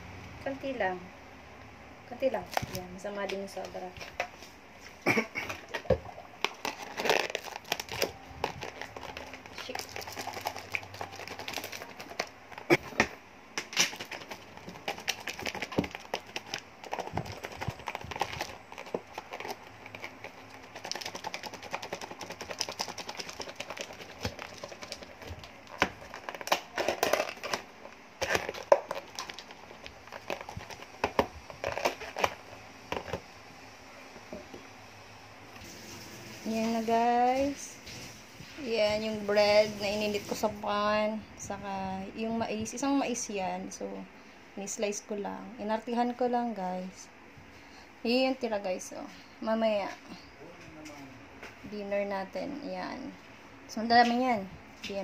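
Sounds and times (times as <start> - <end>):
packaging crinkling and rustling: 5.5 - 33.3.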